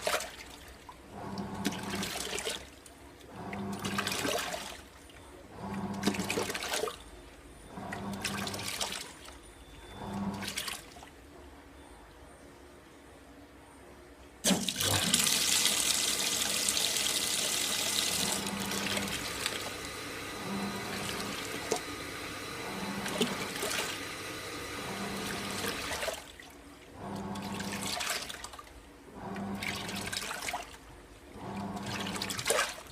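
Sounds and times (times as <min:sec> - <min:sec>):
water rushing into washing machine: 0:00.0 - 0:07.0, 0:07.7 - 0:09.3, 0:10.0 - 0:11.1, 0:14.4 - 0:32.9
washing machine motor humming: 0:01.1 - 0:02.5, 0:03.2 - 0:04.7, 0:05.5 - 0:06.9, 0:07.7 - 0:09.0, 0:09.8 - 0:10.7, 0:14.5 - 0:28.4, 0:29.1 - 0:30.6, 0:31.3 - 0:32.8.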